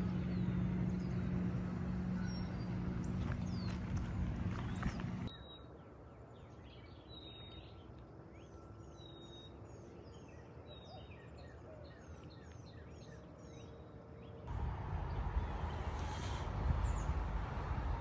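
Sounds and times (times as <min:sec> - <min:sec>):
birds chirping and whistling: 0:02.2 - 0:05.8.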